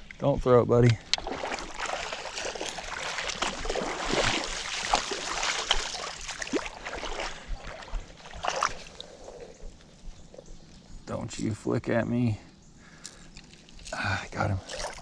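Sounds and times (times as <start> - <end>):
water splashing and sloshing: 0.9 - 10.4, 12.9 - 15.0.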